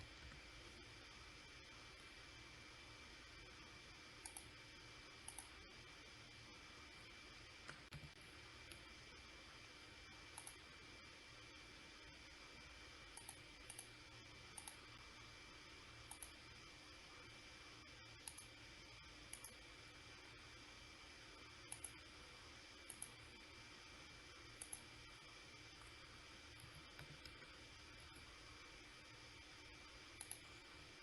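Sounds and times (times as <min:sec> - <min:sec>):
low electrical hum: 0:00.0 - 0:31.0
computer mouse clicks: 0:04.2 - 0:04.6, 0:05.2 - 0:05.6, 0:10.3 - 0:10.6, 0:13.1 - 0:14.9, 0:16.0 - 0:16.4, 0:18.2 - 0:18.6, 0:19.3 - 0:19.6, 0:21.6 - 0:22.0, 0:22.8 - 0:23.3, 0:24.6 - 0:24.9, 0:26.5 - 0:28.3, 0:30.1 - 0:30.6.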